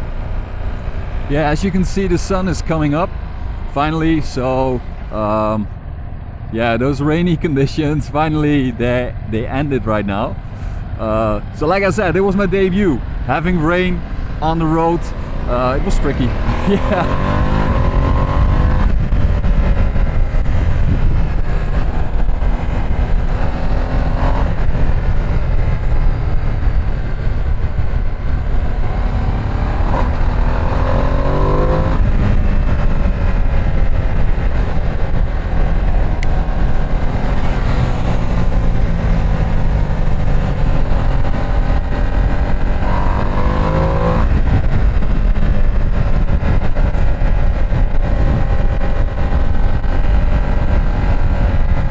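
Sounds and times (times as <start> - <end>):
wind rumble on microphone: 10.2 - 51.9
motorcycle engine accelerating: 13.1 - 51.9.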